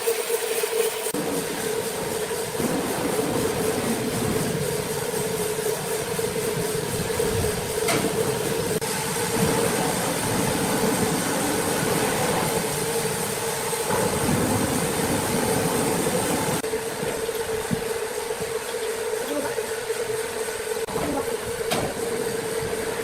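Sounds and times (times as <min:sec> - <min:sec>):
sawmill machinery hum: 0:00.0 - 0:23.0
rumbling clatter: 0:01.2 - 0:19.6.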